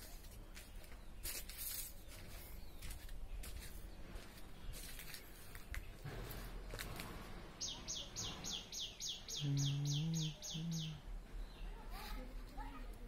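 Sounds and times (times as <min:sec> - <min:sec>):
bird chirping: 0:07.6 - 0:12.2
low drawn-out human voice: 0:09.4 - 0:11.1.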